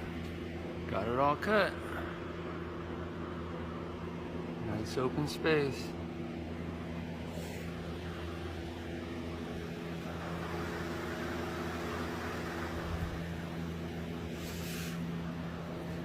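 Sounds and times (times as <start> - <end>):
mechanical hum with hiss: 0.0 - 16.0.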